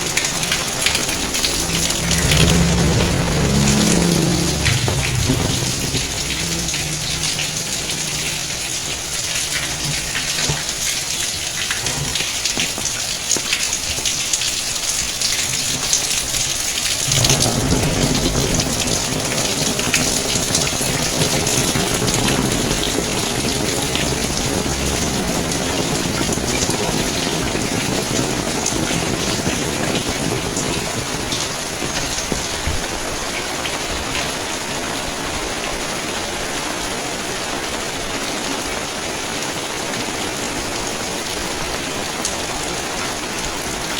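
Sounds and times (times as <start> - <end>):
low rumble: 0.0 - 10.7, 17.0 - 32.4
raindrops ticking: 0.0 - 34.4
rain falling: 0.0 - 43.9.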